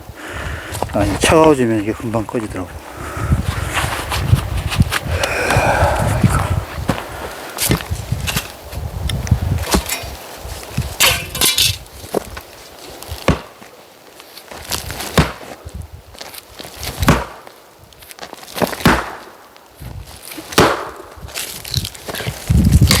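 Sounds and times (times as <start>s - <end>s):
axe chopping wood: 20.6s - 21.0s.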